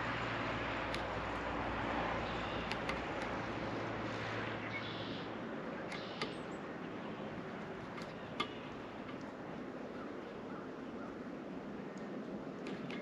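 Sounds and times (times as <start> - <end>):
outdoor background hiss: 0.0 - 13.0
sharp clicks: 2.3 - 3.4, 5.8 - 6.5, 7.8 - 9.3.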